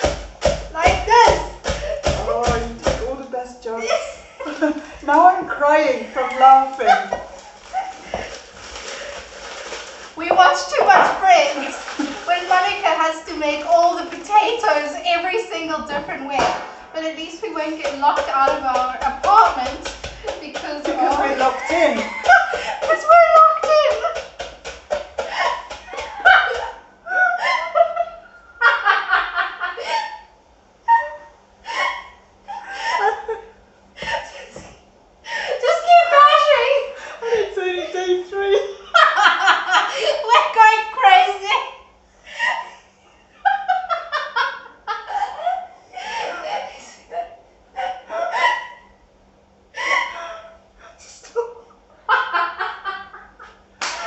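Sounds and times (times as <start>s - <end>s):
women laughing hard: 6.4s - 8.3s, 21.0s - 24.2s, 25.2s - 30.3s, 30.9s - 34.4s, 35.3s - 40.4s, 43.4s - 46.6s, 47.8s - 48.9s, 49.8s - 50.6s, 51.4s - 54.0s.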